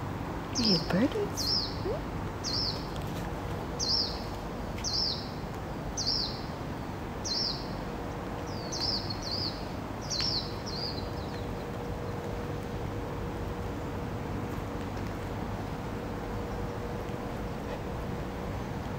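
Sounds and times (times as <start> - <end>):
birds chirping: 0.6 - 2.9, 8.4 - 12.2.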